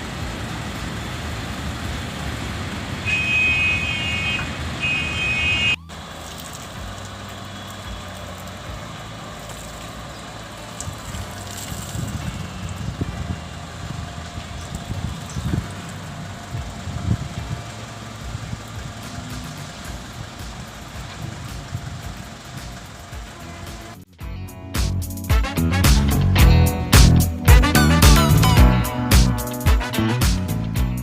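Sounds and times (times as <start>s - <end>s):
vehicle rumble: 0.0s - 31.0s
horn blasts: 3.0s - 5.9s, 23.0s - 24.1s, 25.3s - 26.7s, 27.5s - 30.6s.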